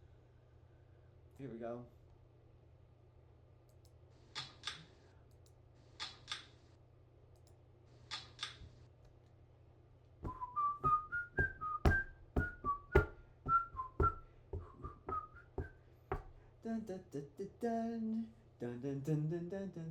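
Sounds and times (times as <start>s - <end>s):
quick clicks: 3.7s - 6.6s, 7.3s - 8.7s
person whistling a tune: 10.3s - 15.8s.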